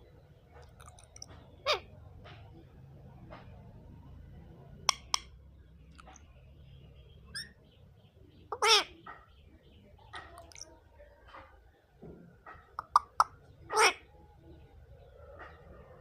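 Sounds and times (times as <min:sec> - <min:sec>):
parrot chirps: 0:07.3 - 0:07.6, 0:12.7 - 0:14.0.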